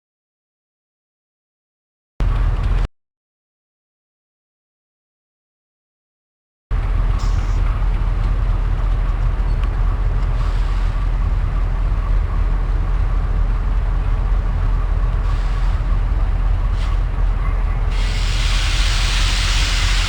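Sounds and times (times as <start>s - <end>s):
train rumbling: 2.2s - 2.9s, 6.7s - 20.0s.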